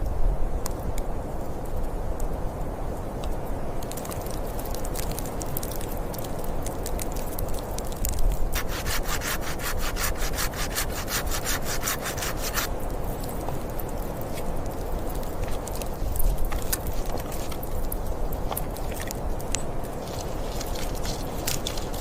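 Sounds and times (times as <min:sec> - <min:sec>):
hand saw cutting wood: 0:08.6 - 0:12.7.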